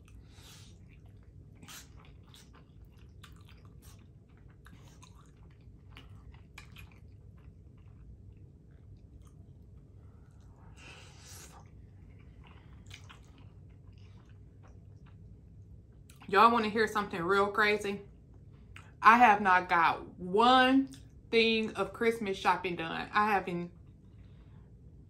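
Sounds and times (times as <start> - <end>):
person chewing: 0.0 - 16.3.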